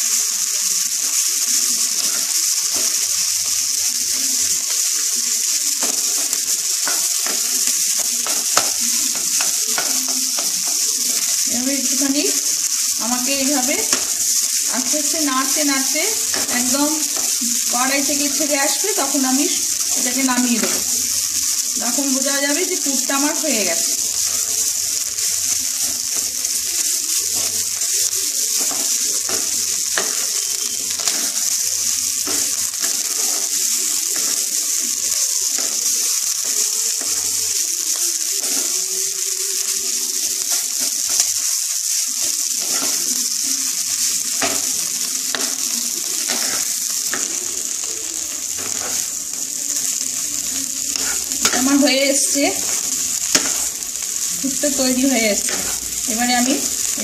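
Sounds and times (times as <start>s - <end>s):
filling sizzling in a pan: 0.0s - 57.0s
wooden spatula scraping a pan: 21.9s - 38.9s, 42.1s - 57.0s.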